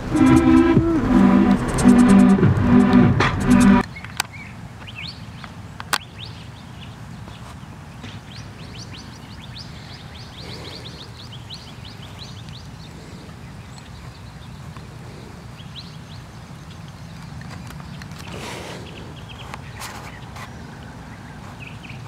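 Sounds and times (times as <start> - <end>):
steady low rumble: 0.0 - 3.8
small birds chirping: 3.8 - 22.0.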